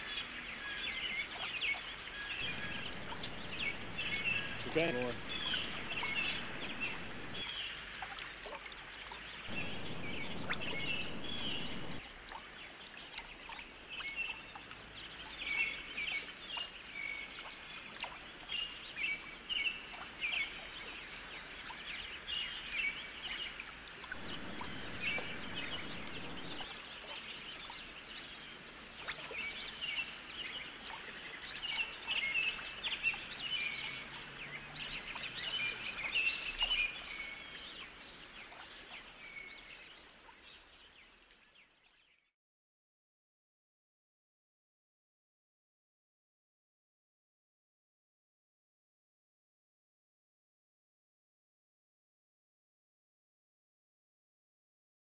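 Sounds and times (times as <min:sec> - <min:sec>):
low rushing noise: 0:02.4 - 0:07.4, 0:09.5 - 0:12.0, 0:24.2 - 0:26.6
high chirping animal calls: 0:02.4 - 0:07.5, 0:09.5 - 0:12.0, 0:24.2 - 0:26.6.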